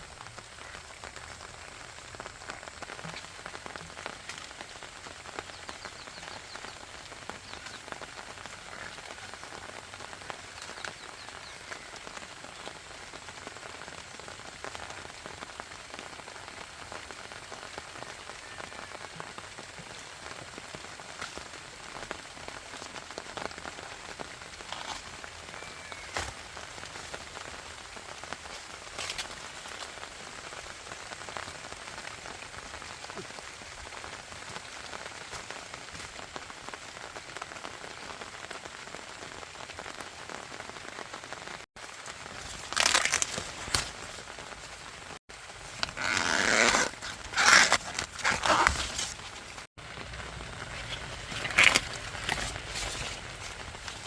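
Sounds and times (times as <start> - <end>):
dry plant material rustling: 42.0 - 54.0.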